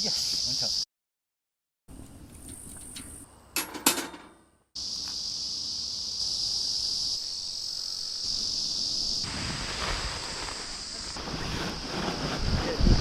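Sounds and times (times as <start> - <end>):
high-pitched insect chorus: 0.0 - 0.9, 4.8 - 13.0.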